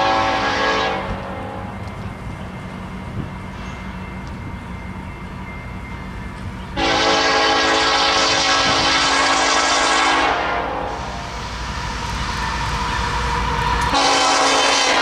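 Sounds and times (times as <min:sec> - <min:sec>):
locomotive air horn blast: 0:00.0 - 0:01.7, 0:06.8 - 0:11.4, 0:13.9 - 0:15.0.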